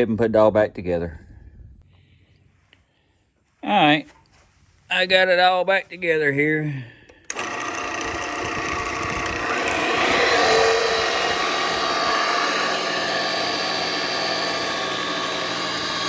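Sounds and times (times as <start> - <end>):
wood lathe motor humming: 7.2 - 16.0.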